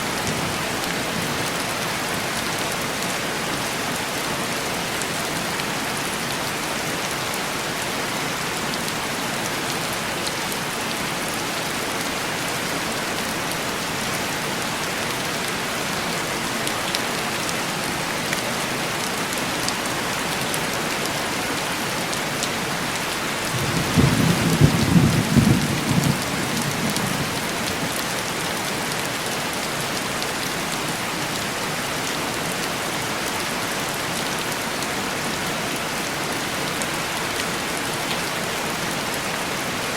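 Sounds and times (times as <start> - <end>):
thunder rolling: 23.5 - 27.3.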